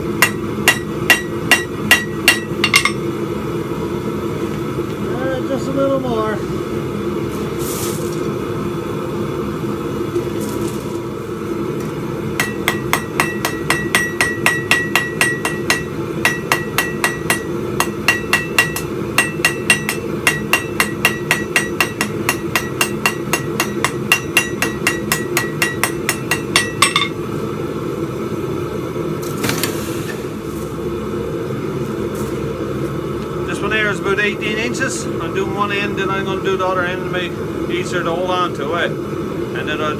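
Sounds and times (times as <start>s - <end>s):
low hum: 0.0s - 37.8s
hammer ringing on anvil: 0.2s - 3.1s, 12.4s - 27.2s.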